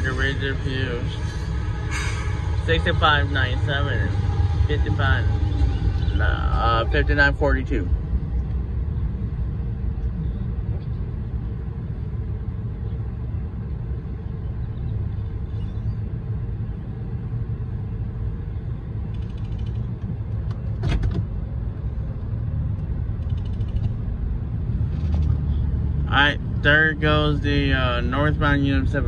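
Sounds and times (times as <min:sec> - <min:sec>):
freight train rumble: 0:00.0 - 0:29.0
sharp clatter: 0:19.1 - 0:21.3, 0:23.1 - 0:24.0.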